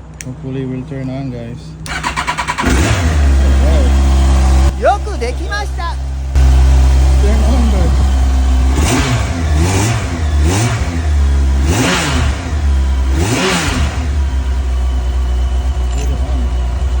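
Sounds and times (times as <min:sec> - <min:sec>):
motorcycle engine revving and idling: 0:00.2 - 0:17.0.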